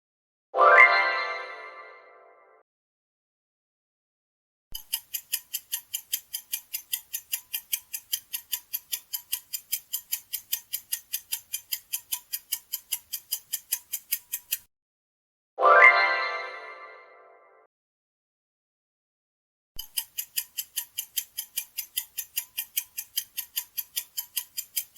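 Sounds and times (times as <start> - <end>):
timer clock ticking: 4.8 - 14.7, 19.8 - 24.9.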